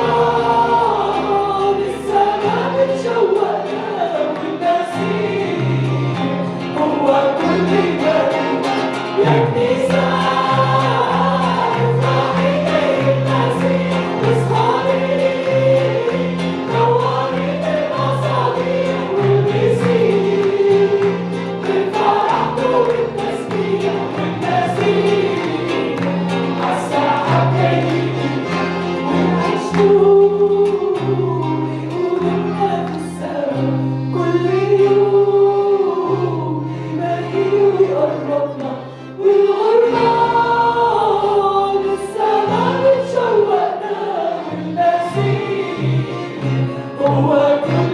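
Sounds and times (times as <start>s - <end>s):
group singing a worship song: 0.0s - 47.9s
band accompaniment with pulsing bass: 5.8s - 30.3s.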